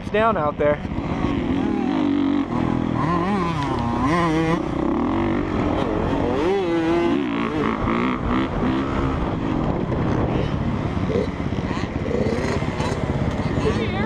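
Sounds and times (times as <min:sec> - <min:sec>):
dirt bike engine revving: 0:00.8 - 0:14.0.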